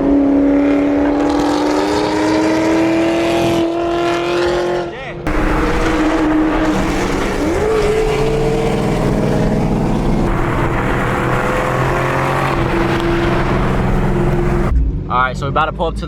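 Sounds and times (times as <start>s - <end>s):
car engine running: 5.3s - 14.7s.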